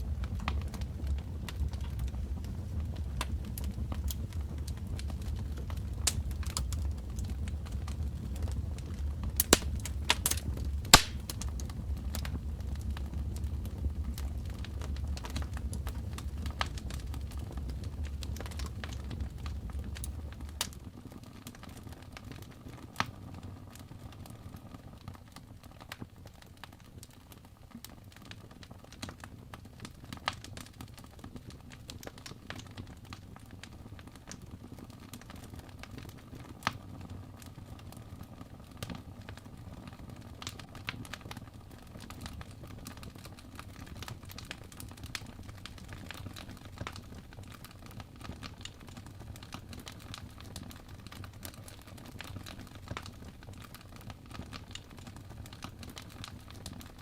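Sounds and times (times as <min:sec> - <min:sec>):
loud fire pops: 0:00.0 - 0:20.9
fire crackling and snapping: 0:00.0 - 0:57.0
low rumble of flame: 0:00.0 - 0:57.0.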